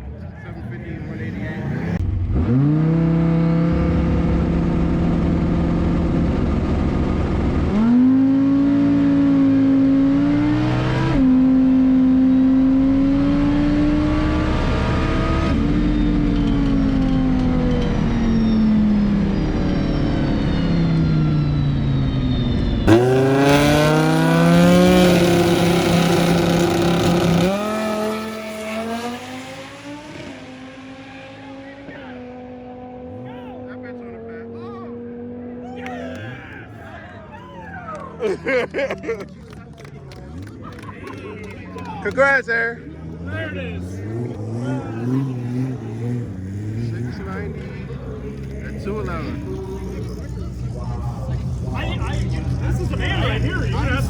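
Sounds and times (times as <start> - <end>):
drag racing car engine accelerating: 0.0 - 36.4, 37.6 - 54.0.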